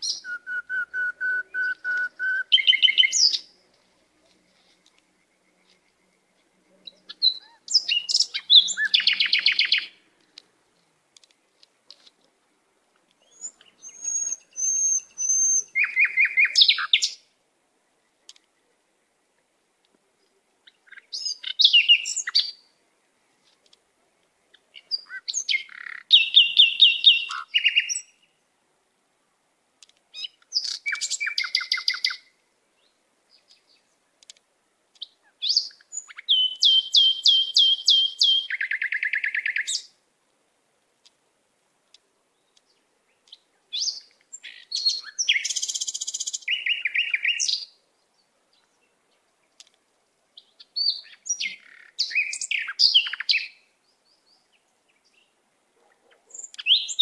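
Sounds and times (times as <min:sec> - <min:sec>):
songbirds trilling: 0:00.0 - 0:11.5, 0:13.2 - 0:17.2.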